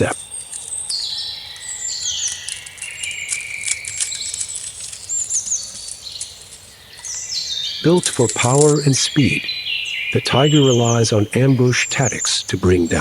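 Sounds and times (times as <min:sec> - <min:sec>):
falling whistled bird notes: 0:00.0 - 0:12.5
birds chirping and clicking: 0:00.0 - 0:13.0.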